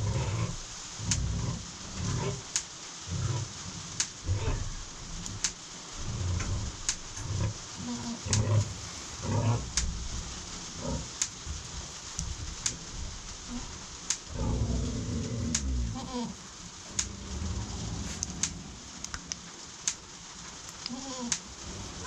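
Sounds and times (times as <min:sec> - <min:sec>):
pig grunting: 0:00.0 - 0:11.6, 0:12.7 - 0:19.4, 0:20.9 - 0:22.0
sharp ticks: 0:05.2 - 0:05.6, 0:08.3 - 0:08.5, 0:18.2 - 0:20.0.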